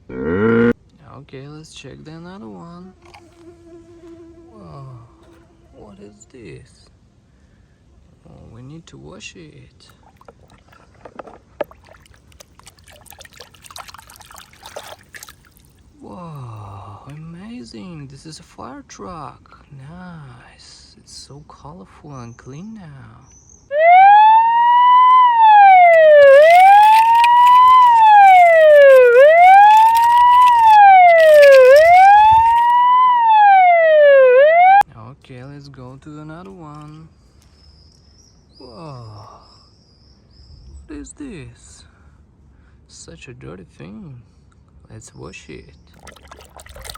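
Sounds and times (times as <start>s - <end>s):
water trickling and splashing: 3.0s - 3.5s, 9.9s - 16.0s, 25.7s - 32.8s, 46.0s - 46.9s
fire truck siren wailing: 23.7s - 34.8s.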